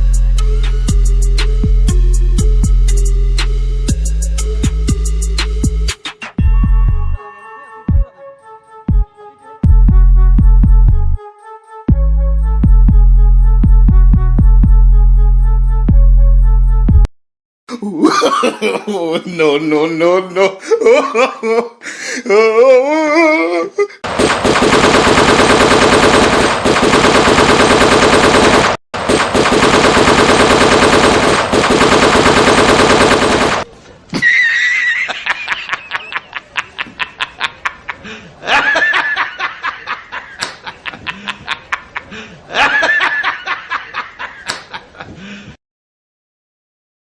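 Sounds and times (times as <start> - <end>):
person speaking: 17.7 - 21.2
fake machine-gun fire: 24.0 - 33.7.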